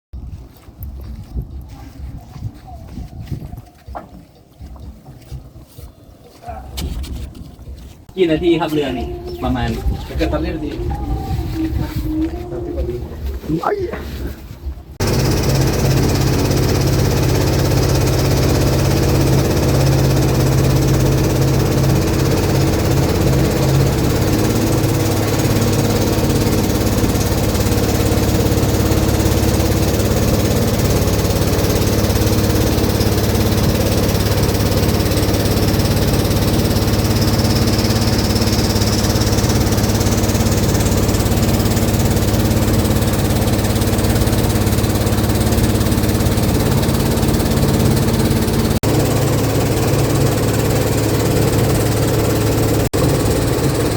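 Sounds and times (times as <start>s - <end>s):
boat engine droning: 8.2s - 13.8s, 15.0s - 53.9s.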